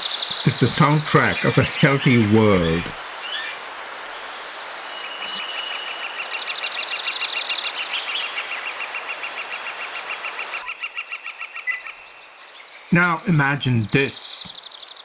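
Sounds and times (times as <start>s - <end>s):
birds trilling: 0.0s - 4.1s
steady hiss: 0.0s - 7.8s.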